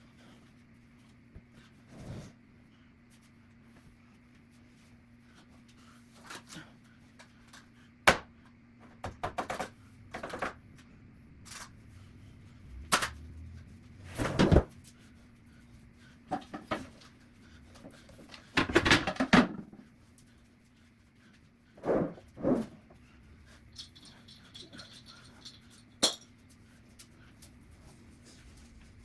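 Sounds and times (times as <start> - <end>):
household objects knocking and clattering: 8.9 - 10.6, 16.3 - 16.9, 18.3 - 19.8.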